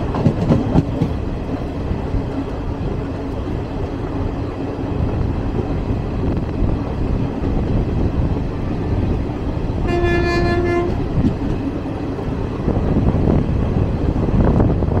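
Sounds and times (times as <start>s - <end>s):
moving train running noise: 0.0s - 15.0s
train horn blast: 9.8s - 11.2s.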